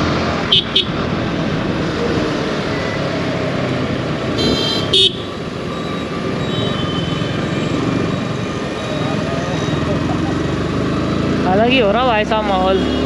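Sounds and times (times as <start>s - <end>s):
high-pitched vehicle horn: 4.4s - 5.3s
motorcycle engine running: 9.7s - 13.0s.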